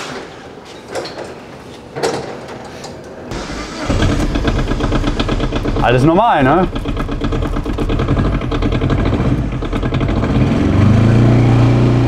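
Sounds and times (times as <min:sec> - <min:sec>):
diesel engine starting and idling: 0:03.3 - 0:12.0.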